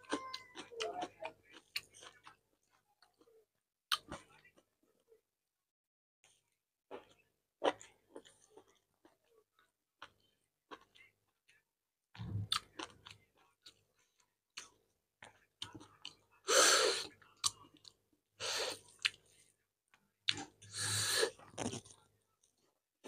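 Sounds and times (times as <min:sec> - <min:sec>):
close chewing with wet smacks: 0:20.2 - 0:20.6, 0:21.4 - 0:22.7.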